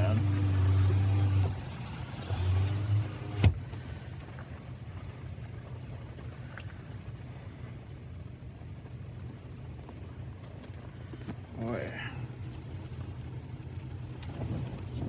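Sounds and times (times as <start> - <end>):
car engine idling: 0.0 - 6.5.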